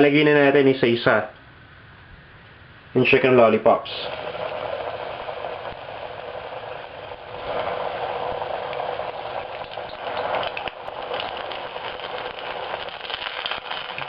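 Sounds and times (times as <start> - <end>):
chicken deep-frying in oil: 3.9 - 14.0.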